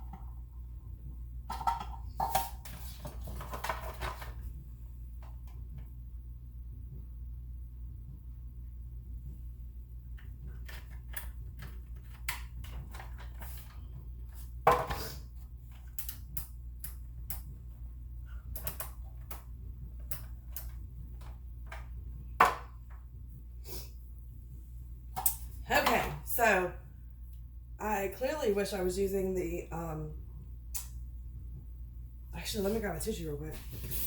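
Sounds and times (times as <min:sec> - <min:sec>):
low hum: 0:00.0 - 0:14.6, 0:26.4 - 0:32.4.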